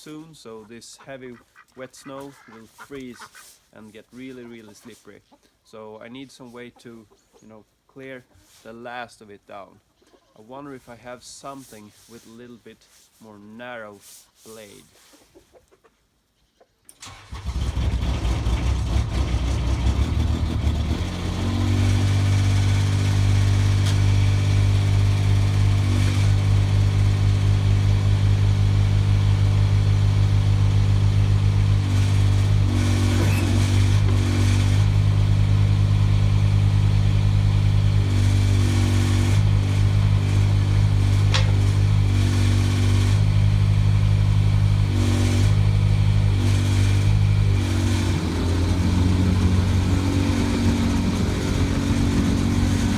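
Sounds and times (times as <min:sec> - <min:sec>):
mini excavator engine running: 0:17.3 - 0:52.9.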